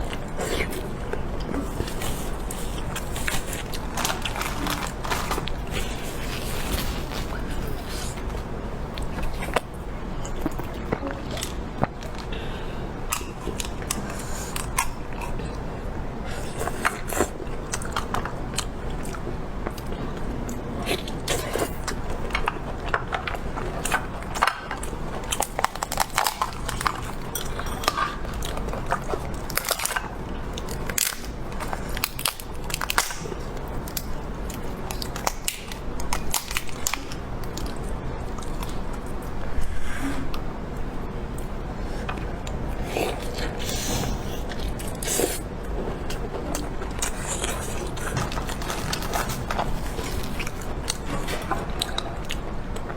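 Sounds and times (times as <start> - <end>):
person chewing crunchy food: 0.0 - 12.3, 41.3 - 52.9.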